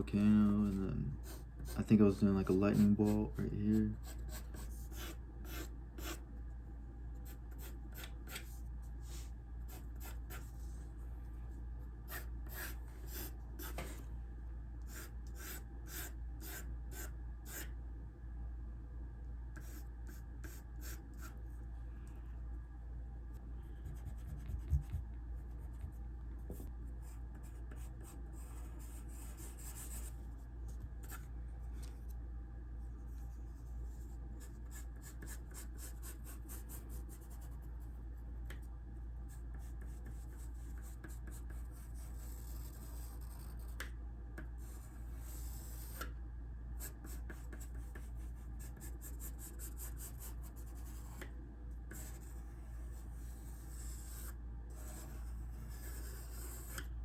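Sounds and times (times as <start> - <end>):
steady low hum: 0.0 - 57.0
pencil scratching on paper: 0.4 - 6.2, 7.2 - 10.8, 12.1 - 14.0, 14.9 - 17.7, 23.7 - 26.0, 26.6 - 30.2, 33.4 - 37.9, 39.3 - 43.9, 44.6 - 46.1, 46.8 - 51.2, 51.9 - 56.9.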